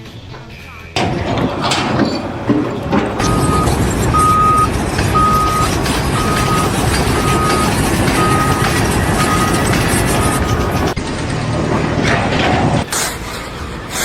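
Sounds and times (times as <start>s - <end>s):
vehicle engine running: 0.0s - 14.0s
reversing alarm beeping: 1.0s - 11.0s.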